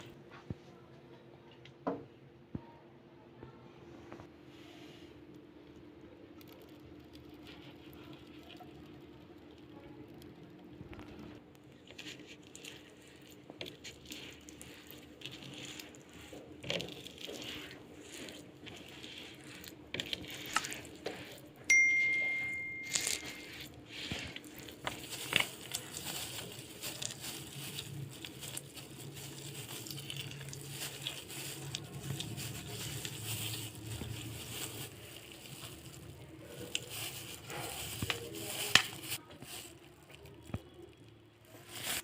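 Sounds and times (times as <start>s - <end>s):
sharp metallic ding: 21.7s - 23.2s.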